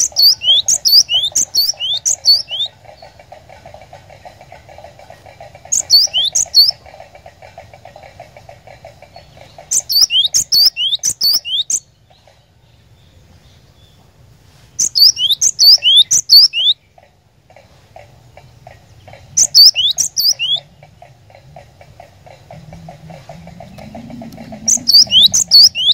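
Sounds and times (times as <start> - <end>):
bird high sweeping chirps: 0.0 - 2.7, 9.7 - 11.8, 14.8 - 16.8, 19.4 - 20.6, 22.9 - 25.9.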